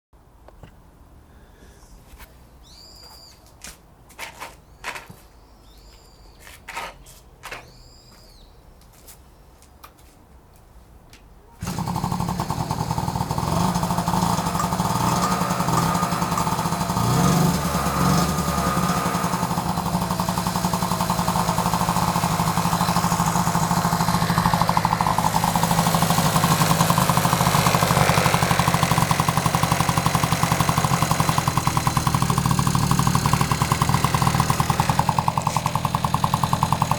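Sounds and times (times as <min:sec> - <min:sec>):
two-stroke engine running: 0:11.6 - 0:36.9.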